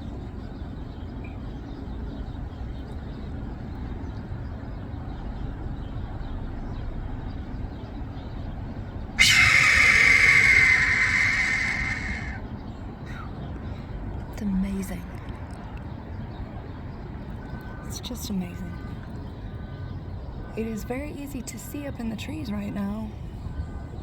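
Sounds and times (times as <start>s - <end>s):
low background rumble: 0.0s - 24.0s
hawk hoarse scream: 9.2s - 12.4s.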